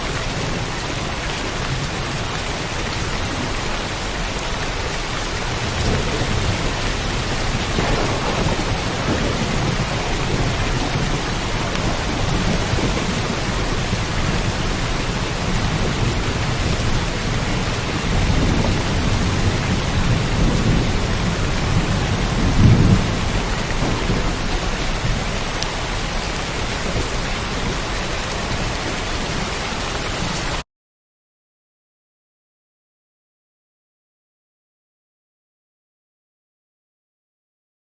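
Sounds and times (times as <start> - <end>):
steady rain falling: 0.0 - 30.6
rolls of thunder: 5.7 - 25.5.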